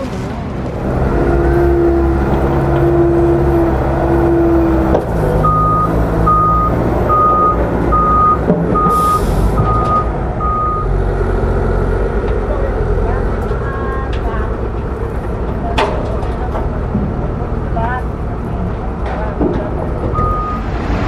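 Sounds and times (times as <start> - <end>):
diesel engine running: 0.0 - 21.0
reversing alarm beeping: 5.4 - 10.9, 20.1 - 20.8.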